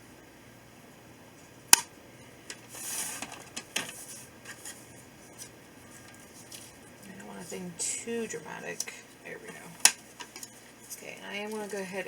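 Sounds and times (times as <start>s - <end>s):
paper rustling: 2.5s - 8.0s, 8.7s - 12.0s.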